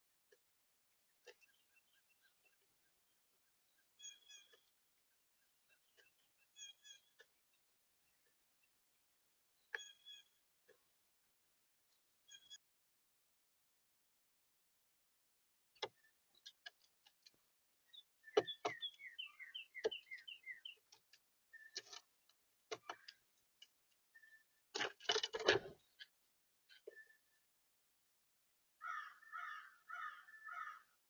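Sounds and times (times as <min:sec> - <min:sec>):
birds chirping: 0:00.7 - 0:12.6, 0:15.8 - 0:27.5, 0:28.8 - 0:31.0
harsh repeated bird calls: 0:18.0 - 0:20.9, 0:28.8 - 0:31.0.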